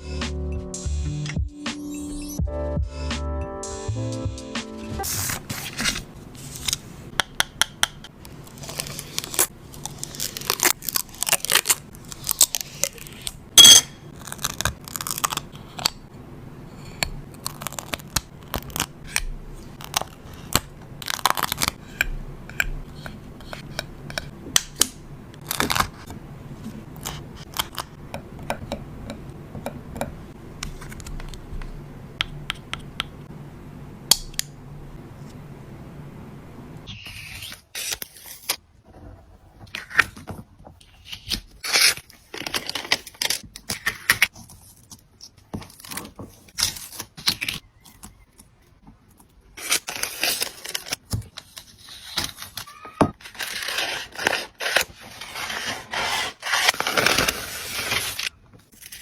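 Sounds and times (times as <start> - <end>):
paper rustling and crinkling: 5.0 - 7.0, 8.3 - 13.4, 39.7 - 59.0.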